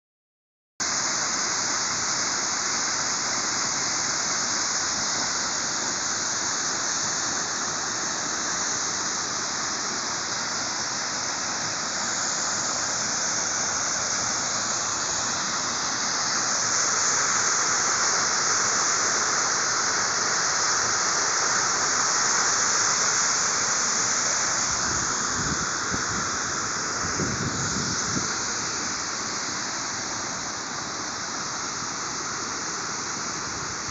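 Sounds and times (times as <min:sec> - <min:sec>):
waterfall rushing: 0:00.8 - 0:33.9.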